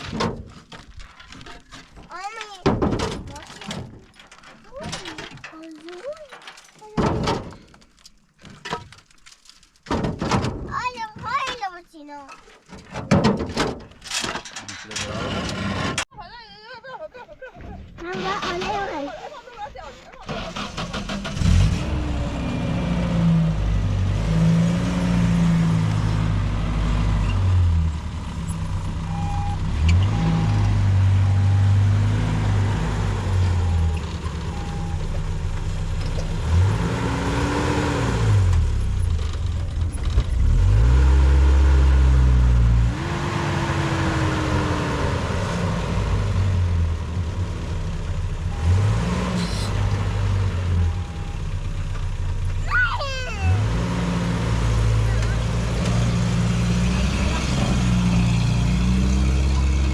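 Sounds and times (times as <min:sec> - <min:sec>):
car engine revving: 0:20.3 - 0:29.0, 0:36.3 - 0:50.8, 0:52.8 - 0:59.9.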